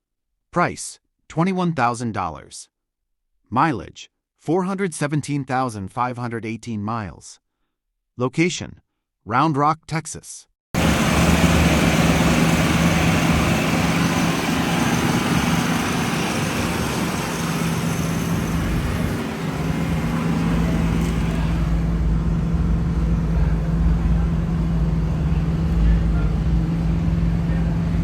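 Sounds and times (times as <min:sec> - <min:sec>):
car engine running: 0:10.8 - 0:28.0.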